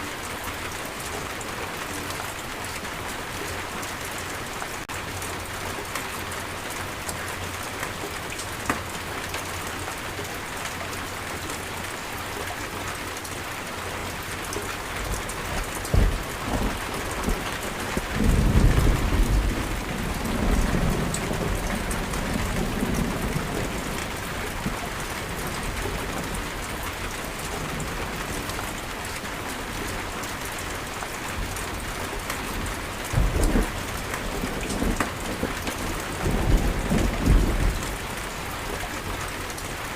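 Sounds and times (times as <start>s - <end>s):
steady rain falling: 0.0s - 39.9s
thunder rumbling: 14.7s - 28.5s, 32.6s - 38.5s
loud thunder clap: 15.6s - 23.4s.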